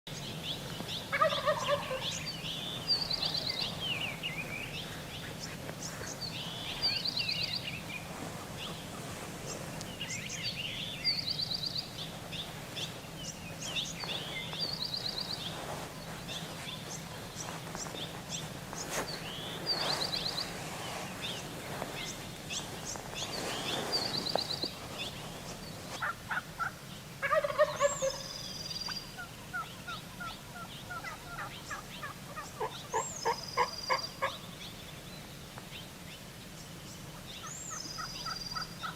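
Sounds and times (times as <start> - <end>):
turkey gobbling: 1.1 - 2.3, 26.0 - 28.3, 29.2 - 34.4.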